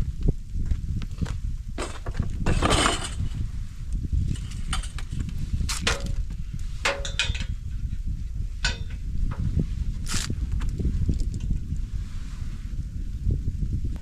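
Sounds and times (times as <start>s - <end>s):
sharp metallic knocks and clinks: 6.9s - 7.6s, 8.6s - 9.0s.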